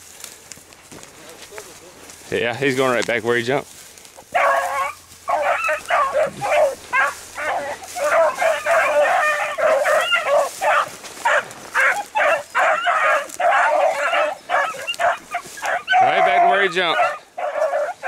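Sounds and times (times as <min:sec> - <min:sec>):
dogs baying: 0:04.2 - 0:18.0.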